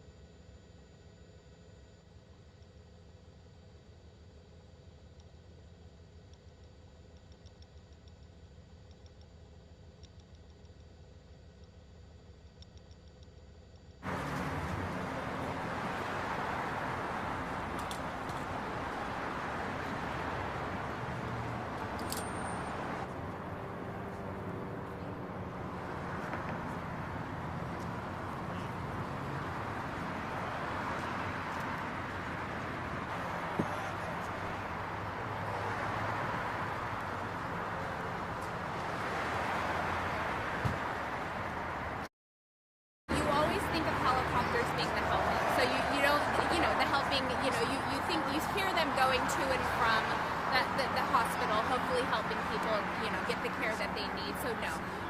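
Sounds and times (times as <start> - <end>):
loud highway traffic: 14.0 - 42.1, 43.1 - 55.0.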